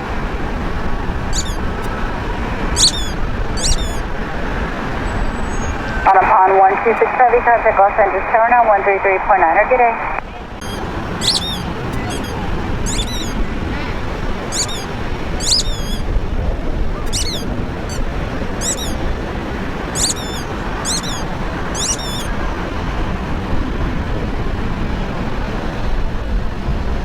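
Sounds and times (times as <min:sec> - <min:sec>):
birds chirping: 0:01.1 - 0:06.3, 0:10.6 - 0:16.3, 0:16.9 - 0:22.6.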